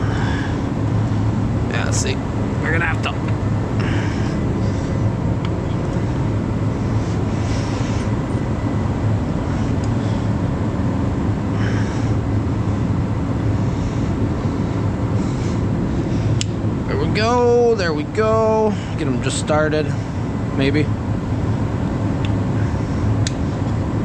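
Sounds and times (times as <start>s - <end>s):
machine drone with low hum: 0.0s - 24.0s.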